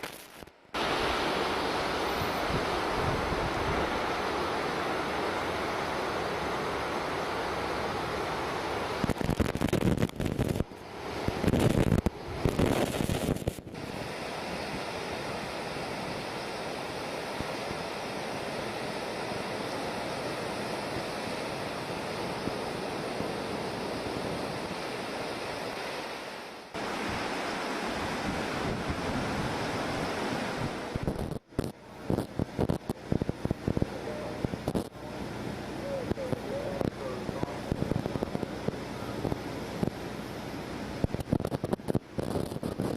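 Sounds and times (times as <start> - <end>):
river rushing: 0.8 - 9.0, 24.9 - 31.1
wind buffeting microphone: 2.2 - 4.0, 9.0 - 14.0.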